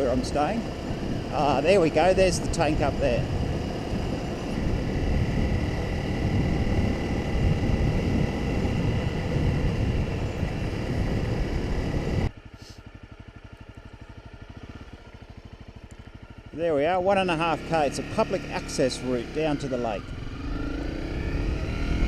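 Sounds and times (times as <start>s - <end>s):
motorcycle engine at speed: 0.0s - 22.0s
motorcycle engine idling: 0.0s - 22.0s.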